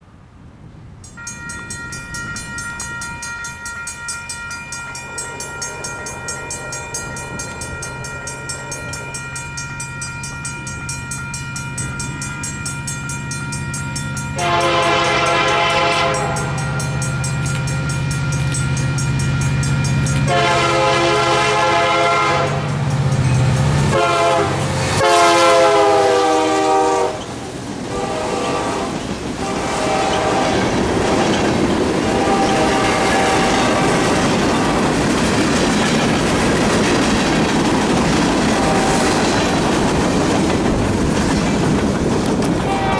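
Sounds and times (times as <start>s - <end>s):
bell ringing: 1.1s - 21.7s
train air horn blasts: 14.4s - 17.0s, 20.2s - 22.8s, 23.7s - 35.0s, 38.4s - 39.4s, 42.6s - 42.9s.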